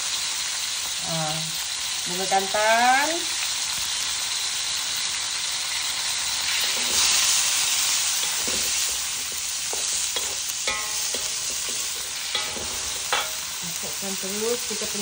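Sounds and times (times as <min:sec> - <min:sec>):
vegetables sizzling in oil: 0:00.0 - 0:15.0
metal spatula clicking on pan: 0:10.2 - 0:13.4.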